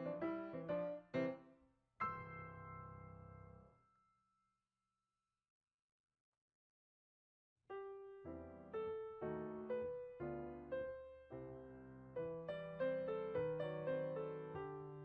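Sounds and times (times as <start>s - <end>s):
piano music: 0.0s - 1.4s, 2.0s - 3.7s, 7.7s - 15.0s.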